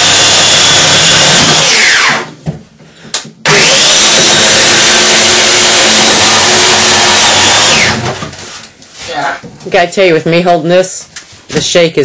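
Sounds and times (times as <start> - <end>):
chainsaw revving and cutting: 0.0 - 2.3, 3.5 - 8.1.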